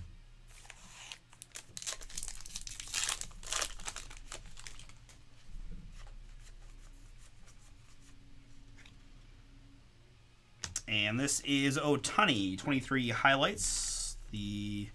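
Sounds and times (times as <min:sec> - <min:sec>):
cards rustling: 0:00.5 - 0:05.2
card pack wrapper tearing: 0:00.6 - 0:05.2.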